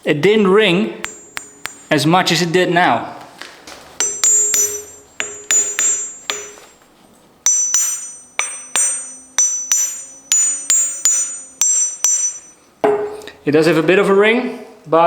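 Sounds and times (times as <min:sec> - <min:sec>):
hammer tapping anvil: 0:01.0 - 0:02.1, 0:04.0 - 0:06.8, 0:07.4 - 0:13.3.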